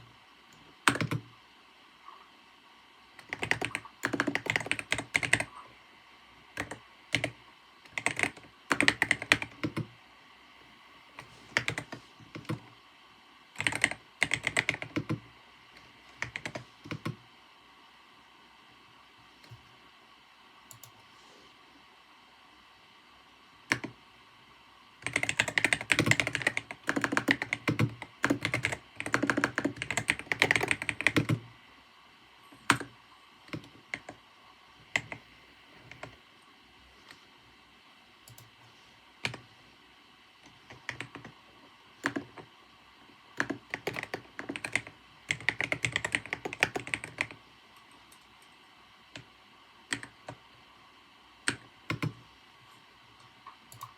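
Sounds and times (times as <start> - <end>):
keyboard typing: 0.5 - 1.3, 3.2 - 5.6, 6.6 - 9.9, 11.2 - 12.7, 13.6 - 15.2, 15.8 - 17.2, 23.7 - 24.0, 25.0 - 31.5, 32.6 - 34.2, 34.9 - 35.2, 35.8 - 36.2, 40.4 - 41.4, 42.0 - 42.5, 43.4 - 47.4, 49.9 - 50.4, 51.4 - 52.2, 53.2 - 53.9.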